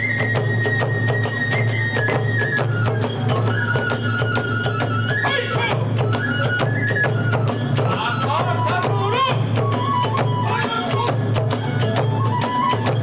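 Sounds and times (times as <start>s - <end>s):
hand cymbal strikes: 0.0s - 5.2s, 5.8s - 13.0s
bamboo flute melody: 0.0s - 13.0s.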